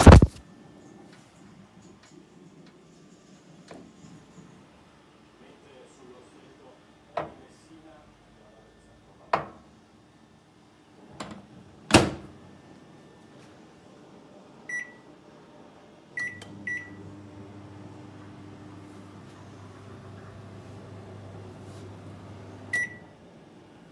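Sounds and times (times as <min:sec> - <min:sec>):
microwave running hum: 0:16.1 - 0:23.9.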